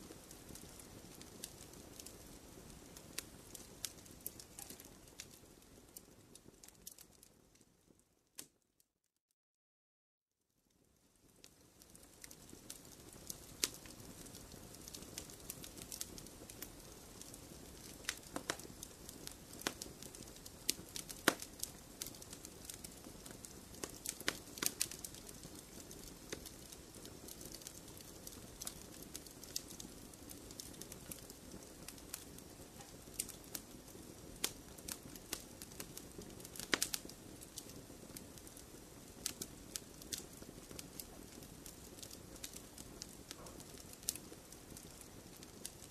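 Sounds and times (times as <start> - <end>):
fire crackling and popping: 0.0 - 8.6, 10.7 - 45.9
soft steady hiss: 0.0 - 8.6, 10.6 - 45.9.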